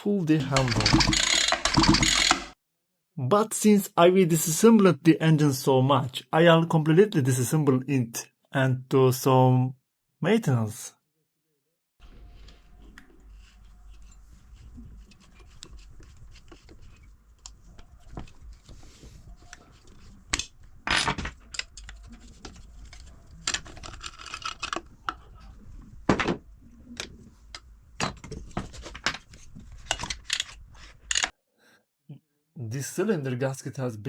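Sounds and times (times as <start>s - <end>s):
metal tools and parts clinking: 0.4s - 2.5s.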